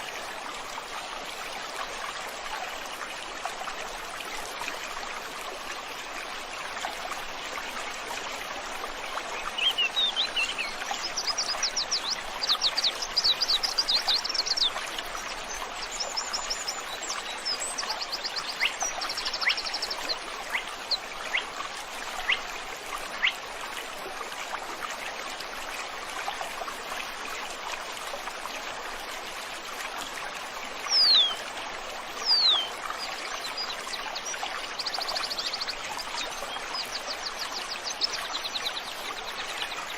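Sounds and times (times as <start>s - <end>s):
stream flowing: 0.0s - 39.9s
birds singing: 9.4s - 14.8s, 15.5s - 21.5s, 30.9s - 31.4s, 32.2s - 39.9s.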